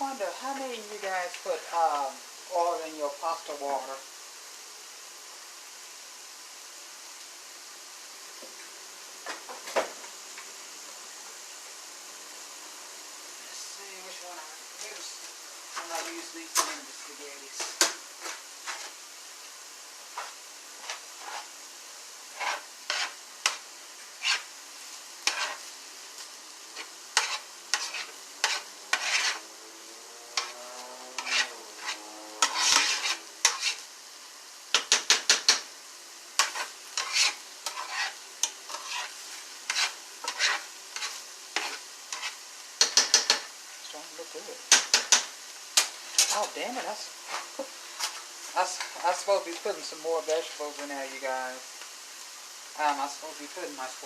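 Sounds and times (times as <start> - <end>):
food sizzling: 0.0 - 54.0
spoon scraping in frying pan: 17.6 - 19.0, 20.1 - 29.5, 30.3 - 33.9, 34.6 - 35.7, 36.3 - 43.6, 44.6 - 52.0.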